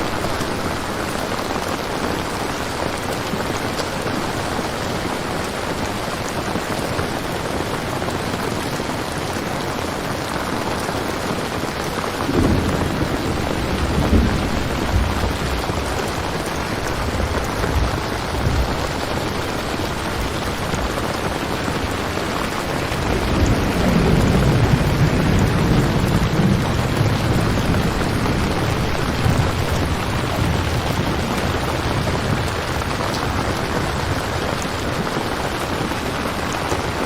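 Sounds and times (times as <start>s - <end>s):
steady rain falling: 0.0s - 37.0s
thunder rumbling: 11.7s - 37.0s.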